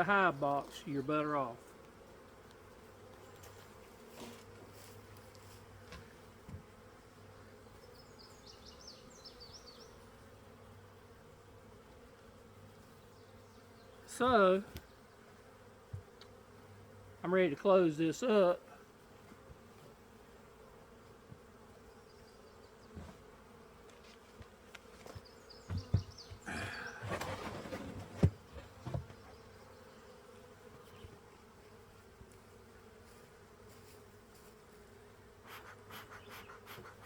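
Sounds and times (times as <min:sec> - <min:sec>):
honeybees buzzing: 0:00.0 - 0:37.0
knocks on hive: 0:25.2 - 0:27.3, 0:28.0 - 0:29.3
rustling and handling noise: 0:27.0 - 0:29.2.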